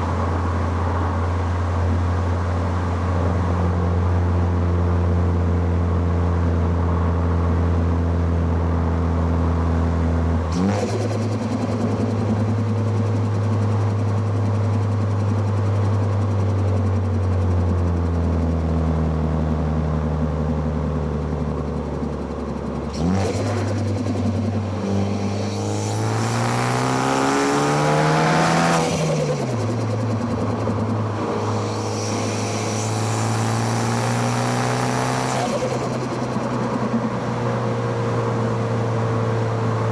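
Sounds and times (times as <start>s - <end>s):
car engine revving hard: 10.5s - 13.3s, 22.7s - 39.6s.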